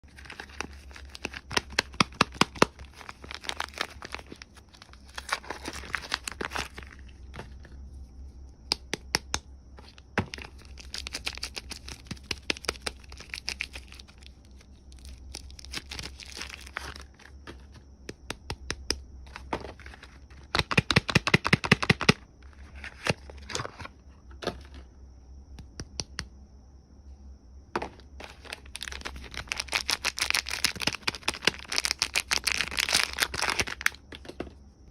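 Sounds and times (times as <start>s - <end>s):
wrappers torn and crinkled: 0.1s - 7.0s, 10.4s - 17.2s, 28.2s - 34.0s.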